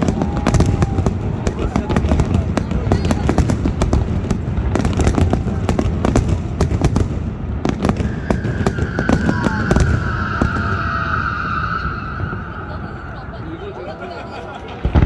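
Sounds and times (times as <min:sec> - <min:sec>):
fireworks cracking and popping: 0:00.0 - 0:13.2, 0:14.6 - 0:15.0
steady high tone: 0:08.8 - 0:14.2.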